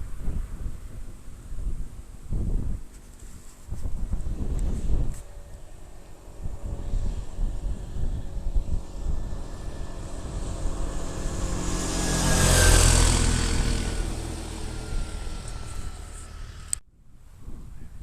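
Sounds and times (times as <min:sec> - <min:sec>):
motor vehicle passing by: 0:03.0 - 0:16.8.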